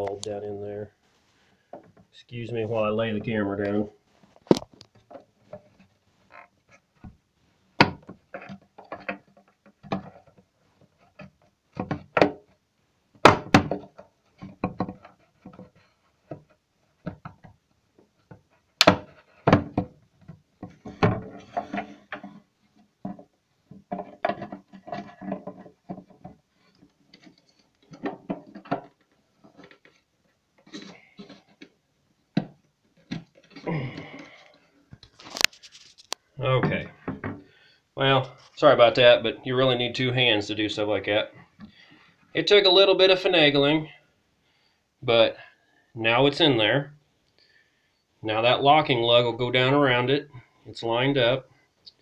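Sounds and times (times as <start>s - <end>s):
hard plastic parts knocking and clicking: 4.4s - 5.9s, 7.8s - 37.5s.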